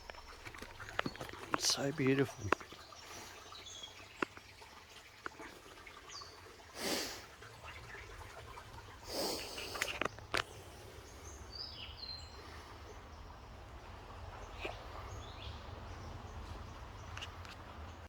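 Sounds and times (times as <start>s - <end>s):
faint bird chirps: 7.3s - 17.6s
low steady rumble: 7.4s - 18.0s.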